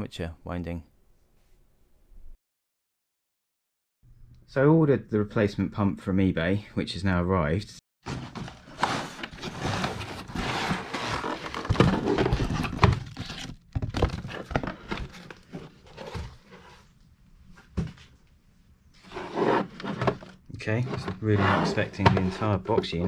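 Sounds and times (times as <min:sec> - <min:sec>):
packaging rustling and tearing: 0:08.1 - 0:16.2.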